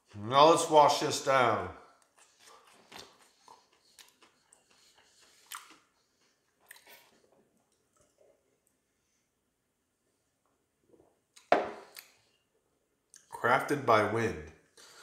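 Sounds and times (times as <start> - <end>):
faint chewing and mouth sounds: 1.8 - 9.4, 10.1 - 13.4.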